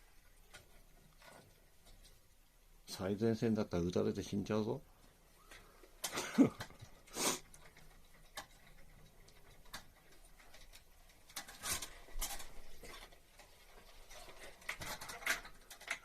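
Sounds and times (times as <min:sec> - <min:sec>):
hand tool scraping: 0:06.4 - 0:09.1.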